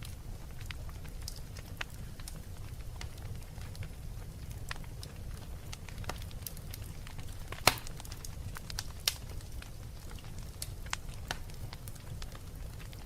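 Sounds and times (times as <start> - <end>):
fire crackling and popping: 0.0 - 13.0
low rumble of flames: 0.0 - 13.0.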